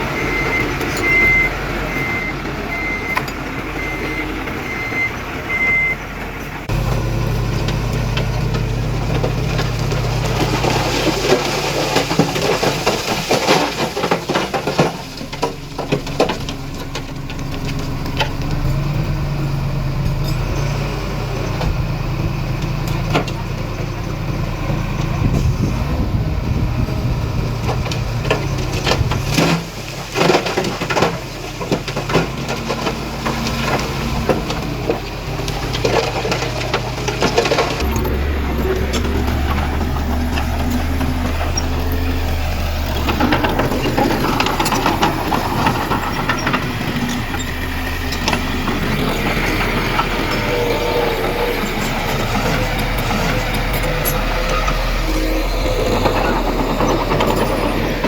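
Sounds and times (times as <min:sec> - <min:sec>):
diesel engine under load: 0:00.0 - 0:58.0
reversing alarm beeping: 0:00.1 - 0:06.0, 0:49.0 - 0:58.0
machinery knocks and clatter: 0:06.2 - 0:58.0.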